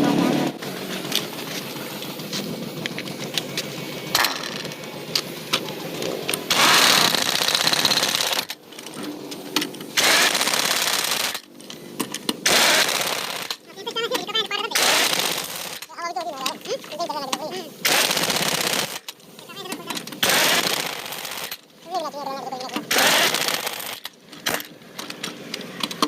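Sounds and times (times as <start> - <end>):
pneumatic air tool bursts: 6.5 - 8.9, 9.9 - 13.7, 14.7 - 16.9, 17.7 - 19.2, 19.8 - 21.7, 22.7 - 24.7.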